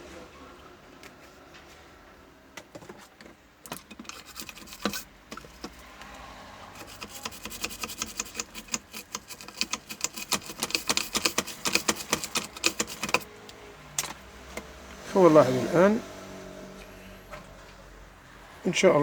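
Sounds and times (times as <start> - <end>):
scratchy scrubbing of circuit board: 3.7 - 5.9, 6.8 - 13.3.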